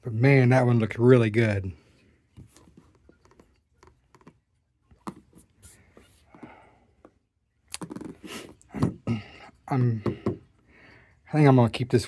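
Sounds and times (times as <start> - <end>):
soft packaging rustle: 2.0 - 7.2.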